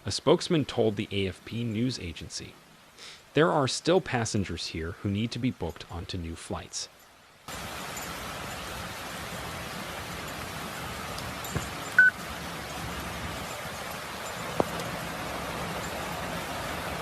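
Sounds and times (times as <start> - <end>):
water hissing: 7.5 - 17.0
short high beep: 12.0 - 12.2.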